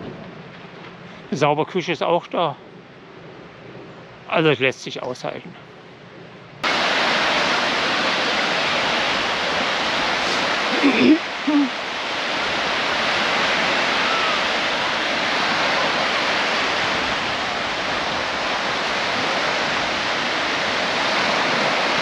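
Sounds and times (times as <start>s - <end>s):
waves washing up on sandy shore: 6.6s - 22.0s.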